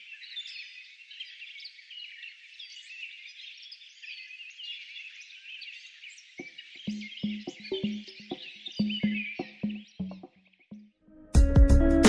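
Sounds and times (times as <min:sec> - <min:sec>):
birds chirping: 0:00.0 - 0:11.0
music with steady beat: 0:11.4 - 0:12.0.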